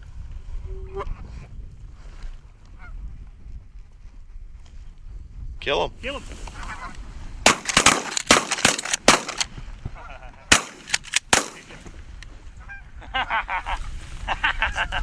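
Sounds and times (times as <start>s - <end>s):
shotgun shots: 7.5s - 9.5s, 10.5s - 12.0s.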